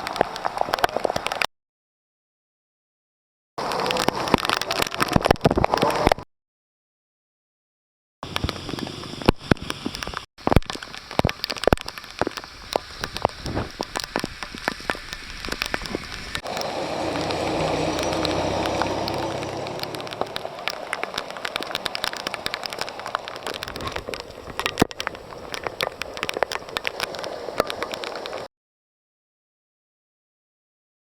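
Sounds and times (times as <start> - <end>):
rain falling: 0.0 - 1.5, 3.6 - 6.2, 8.2 - 28.5
raindrops tapping on microphone: 0.0 - 1.5, 3.6 - 6.2, 8.2 - 28.5
swell of noise: 16.3 - 23.7.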